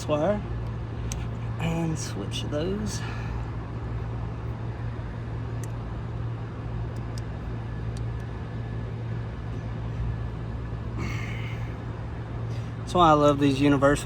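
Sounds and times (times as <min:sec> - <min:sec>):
hvac units humming: 0:00.0 - 0:14.0
faint clicks of wires handled: 0:00.6 - 0:01.4.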